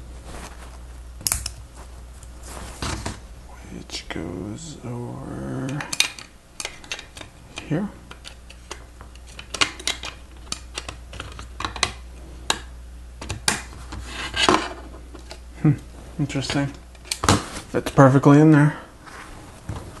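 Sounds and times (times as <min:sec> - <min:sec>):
plastic parts clicking: 0:05.7 - 0:07.3, 0:08.1 - 0:12.6.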